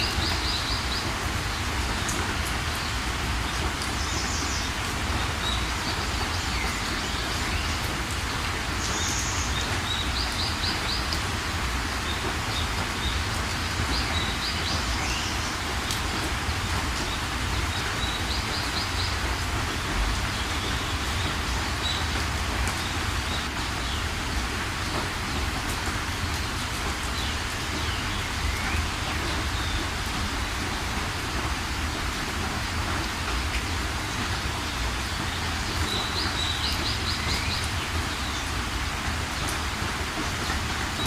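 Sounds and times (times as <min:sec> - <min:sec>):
small birds chirping and trilling: 0:00.0 - 0:19.4, 0:24.8 - 0:30.6, 0:33.3 - 0:39.7
steady rain falling: 0:00.0 - 0:41.0.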